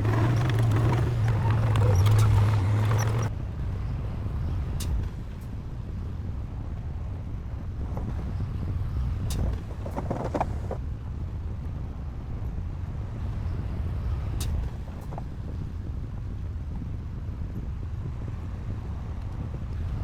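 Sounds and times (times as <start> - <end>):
diesel engine rumbling: 0.0 - 3.3.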